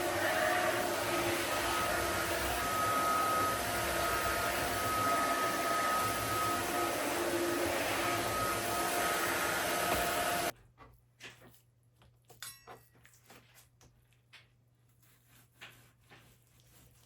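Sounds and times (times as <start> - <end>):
vacuum cleaner whooshing whine: 0.0 - 10.5.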